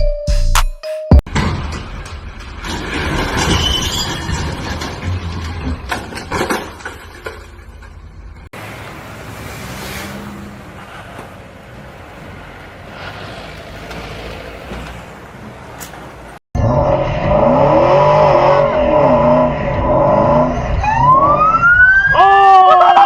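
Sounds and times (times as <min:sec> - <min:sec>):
car road noise: 0:01.3 - 0:16.4
engine rising and falling: 0:08.5 - 0:22.3
siren wailing: 0:17.0 - 0:23.0.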